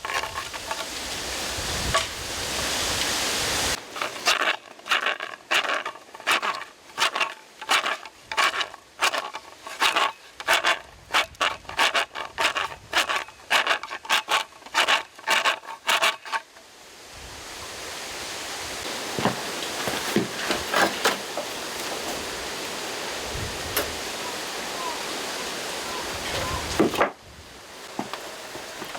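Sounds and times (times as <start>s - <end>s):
rod scraping inside bamboo: 0.0s - 2.8s, 3.7s - 16.6s.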